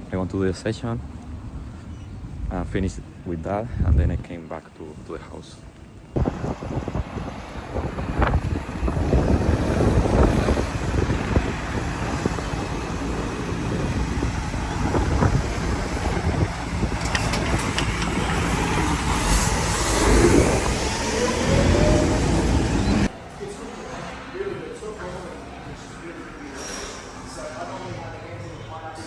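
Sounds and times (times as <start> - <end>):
road traffic rumble: 0.0 - 23.2
wind buffeting microphone: 1.4 - 4.4, 6.2 - 23.1.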